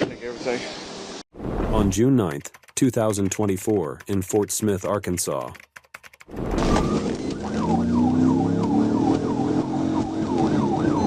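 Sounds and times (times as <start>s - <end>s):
car engine and road noise: 6.3s - 11.0s
police siren yelping: 6.5s - 11.0s.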